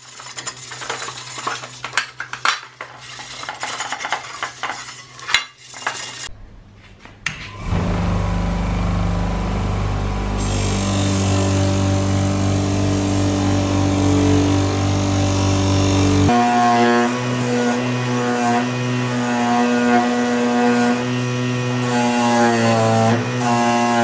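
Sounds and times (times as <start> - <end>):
power tool motor humming: 7.6 - 24.0.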